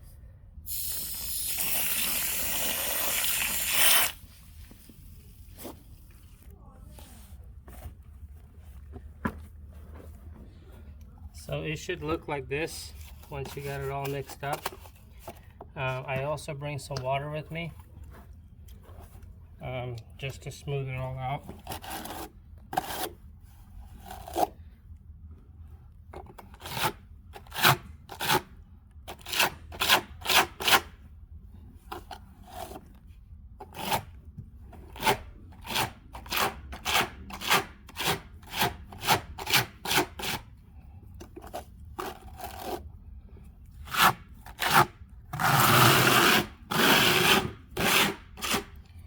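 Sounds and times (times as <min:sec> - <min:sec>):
trowel scraping stucco: 0:00.7 - 0:06.0, 0:41.3 - 0:42.9, 0:43.8 - 0:48.8.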